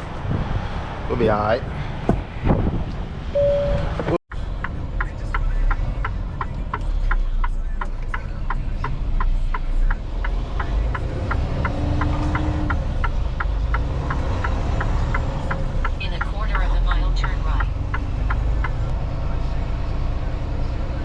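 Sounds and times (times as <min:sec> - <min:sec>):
truck engine rumble: 0:00.0 - 0:21.0
turn-signal flasher ticking: 0:04.6 - 0:18.9.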